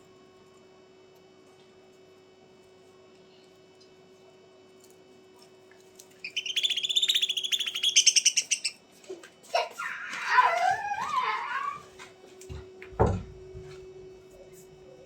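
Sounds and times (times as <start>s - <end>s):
faint steady hum: 0.0s - 15.0s
bird trilling chirps: 6.2s - 8.8s.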